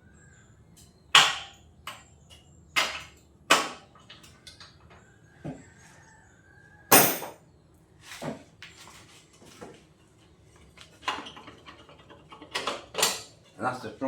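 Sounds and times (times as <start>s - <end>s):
loud sharp metal clank: 6.9s - 7.4s.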